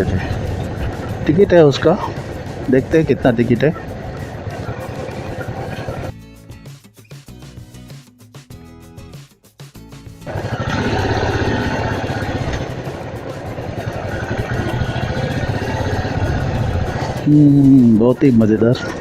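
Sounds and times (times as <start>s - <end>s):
motorcycle engine running: 0.0s - 6.1s, 10.2s - 19.0s
background music: 0.0s - 19.0s.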